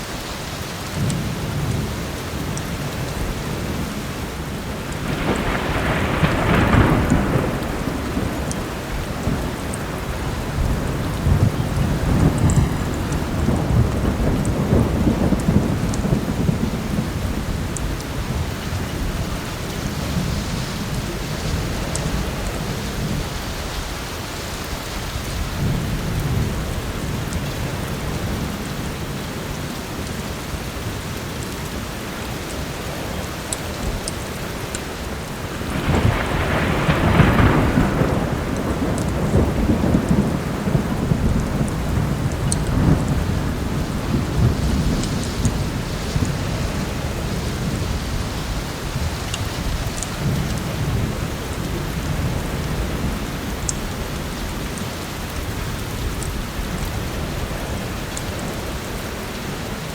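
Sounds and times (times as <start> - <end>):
heavy rain: 0.0 - 59.9
rolling thunder: 2.9 - 23.5, 35.1 - 54.7.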